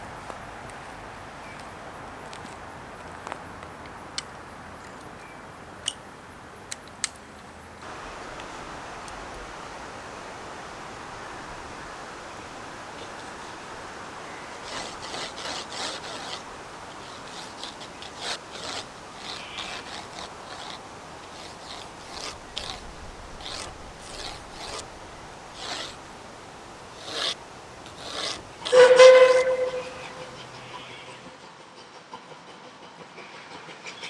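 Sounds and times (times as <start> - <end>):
pencil scraping on paper: 11.7 - 30.5
steam locomotive whistle: 27.9 - 30.7.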